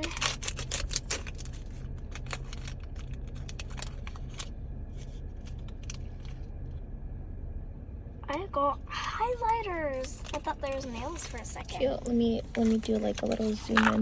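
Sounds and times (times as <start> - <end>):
plastic packaging crinkling: 0.0 - 4.5, 12.4 - 14.0.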